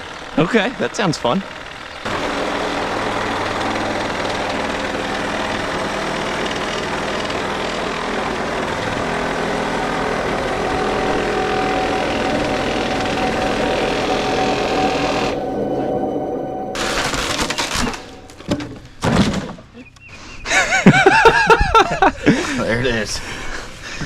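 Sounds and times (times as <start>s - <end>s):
reciprocating saw cutting wood: 1.4s - 15.4s.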